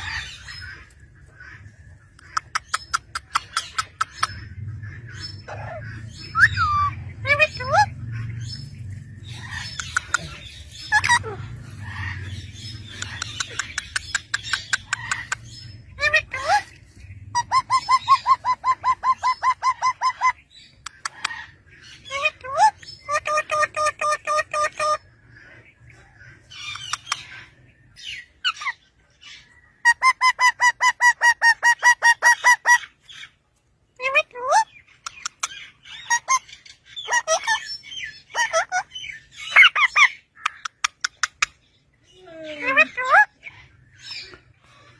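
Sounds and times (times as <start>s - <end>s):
low background hum: 0.0s - 44.9s
parrots squawking and chirping: 0.0s - 44.9s.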